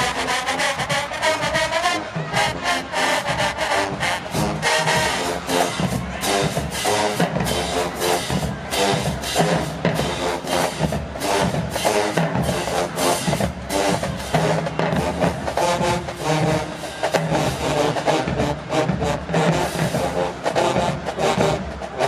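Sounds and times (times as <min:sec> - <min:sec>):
brass chords: 0:00.0 - 0:22.0
marching drum strokes: 0:00.0 - 0:22.0.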